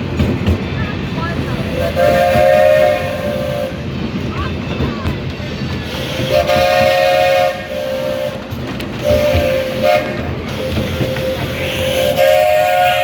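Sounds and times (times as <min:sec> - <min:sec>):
train rumbling: 0:00.0 - 0:13.0
steam locomotive whistle: 0:01.6 - 0:03.9, 0:05.9 - 0:13.0.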